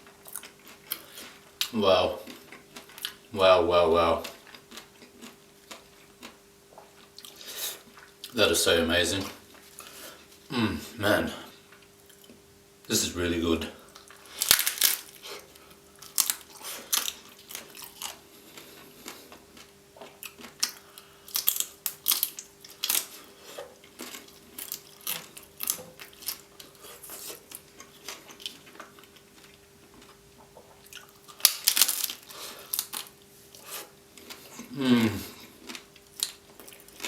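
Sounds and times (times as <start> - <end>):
crunching of taco shell: 14.0 - 30.2, 30.8 - 37.0.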